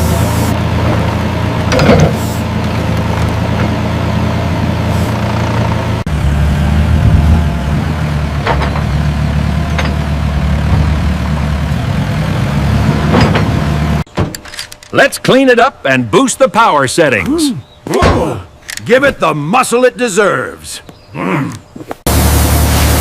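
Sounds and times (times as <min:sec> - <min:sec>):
excavator diesel engine running: 0:00.0 - 0:14.1, 0:22.0 - 0:23.0.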